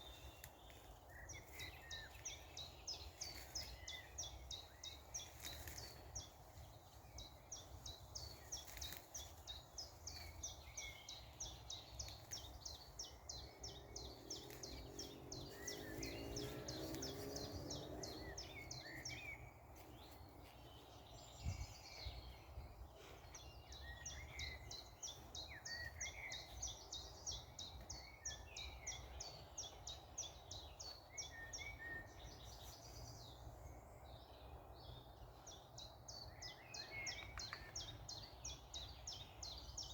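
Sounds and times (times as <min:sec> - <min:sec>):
low outdoor rumble: 0:00.0 - 0:28.1
small birds chirping: 0:00.0 - 0:39.9.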